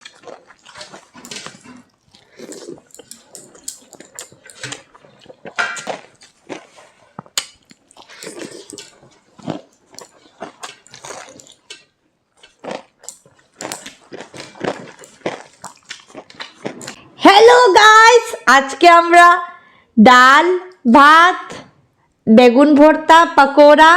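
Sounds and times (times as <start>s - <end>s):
lip-smacking: 0.0s - 17.0s
chewing: 0.0s - 17.2s
slurping: 0.0s - 17.2s
utensils clicking on dishes: 2.6s - 4.9s.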